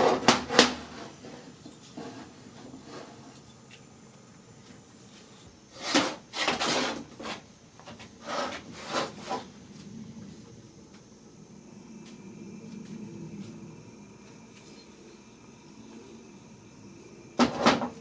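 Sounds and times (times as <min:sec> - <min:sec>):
tools scraping and knocking: 0:05.8 - 0:09.5.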